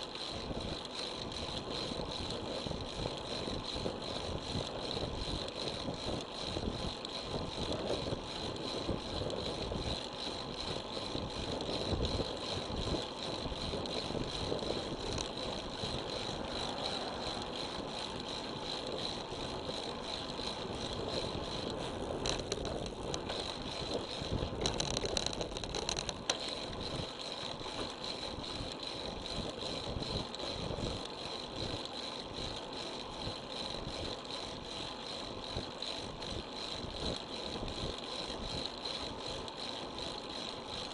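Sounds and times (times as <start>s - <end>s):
bicycle click: 0.0s - 40.9s
wind and tyre noise: 0.0s - 40.9s.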